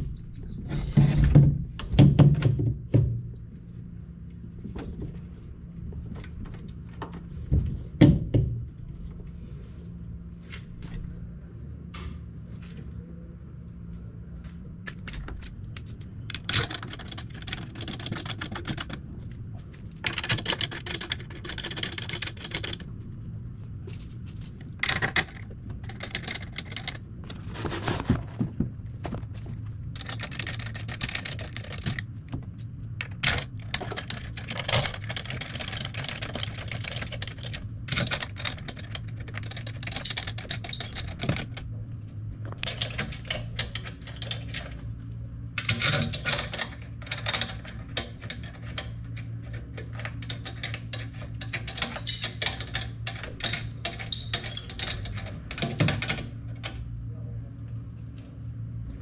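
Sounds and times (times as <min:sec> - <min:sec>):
steady low hum: 0:00.0 - 0:59.0
tools and small parts clicking: 0:14.8 - 0:22.9, 0:23.8 - 0:27.8, 0:29.4 - 0:41.7, 0:42.4 - 0:56.8.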